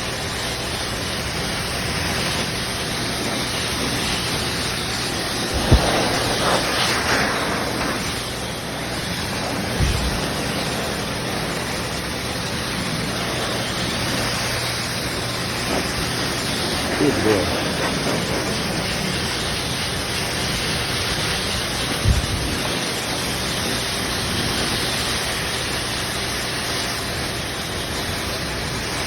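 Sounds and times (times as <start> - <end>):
pet dryer blowing air: 0.0 - 29.0
low thumps: 5.5 - 6.6.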